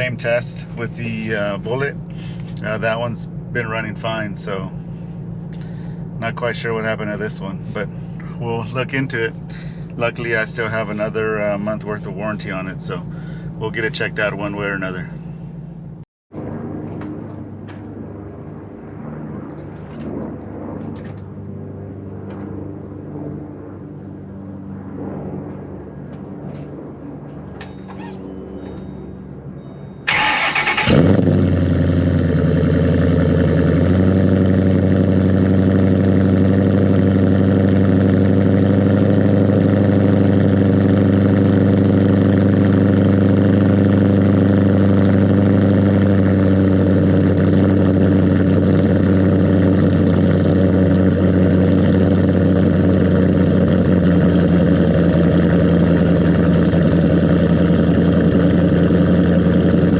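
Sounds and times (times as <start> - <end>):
car engine cold start and idle: 0.0 - 15.9, 30.1 - 59.9.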